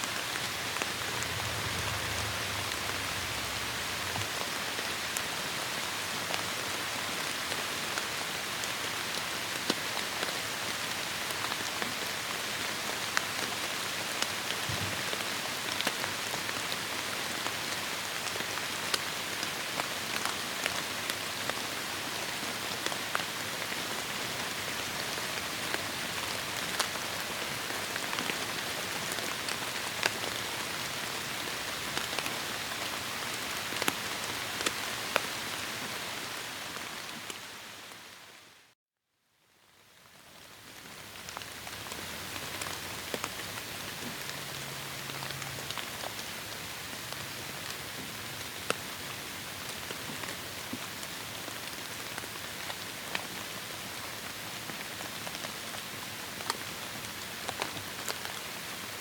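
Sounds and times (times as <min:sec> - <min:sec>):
heavy rain on foliage: 0:00.0 - 0:38.7, 0:39.6 - 0:59.0
raindrops ticking close by: 0:40.0 - 0:48.8.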